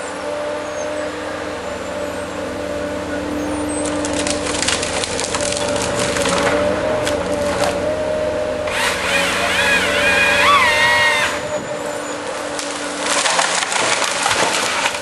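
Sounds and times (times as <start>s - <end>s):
wavering whine: 0.0s - 14.1s
harvester engine running: 0.0s - 15.0s
wood cracking and splintering: 3.5s - 8.0s, 8.7s - 15.0s.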